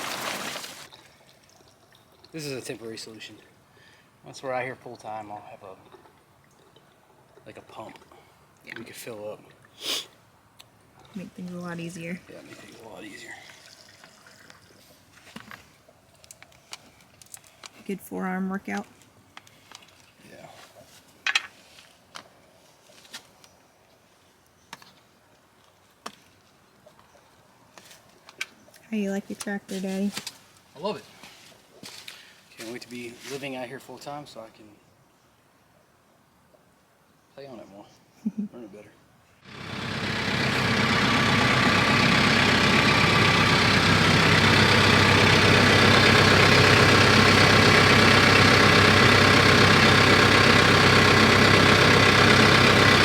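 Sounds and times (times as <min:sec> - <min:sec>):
faint hiss: 0:07.5 - 0:10.3
tractor engine running: 0:39.4 - 0:53.0.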